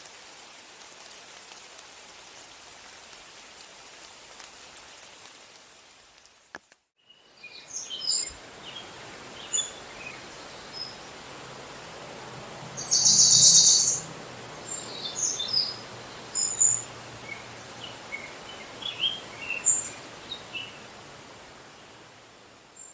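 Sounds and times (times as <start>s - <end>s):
steady hiss: 0.0s - 22.9s
small birds chirping: 7.0s - 21.0s
buzzy bird call: 12.8s - 14.1s.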